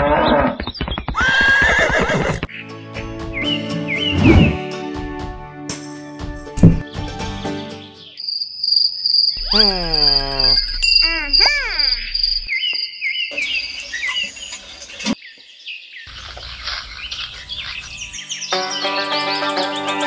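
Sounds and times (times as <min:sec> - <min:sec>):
bird chirps: 0:08.0 - 0:19.7
insect trill: 0:08.2 - 0:14.9.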